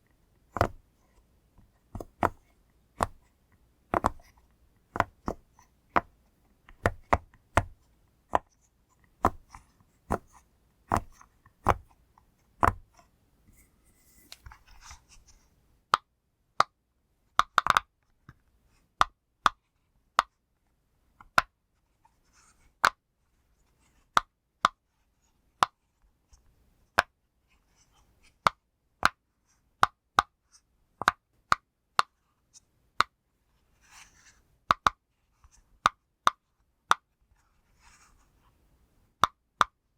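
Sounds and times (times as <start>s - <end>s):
faint handling rustle: 13.5s - 15.6s.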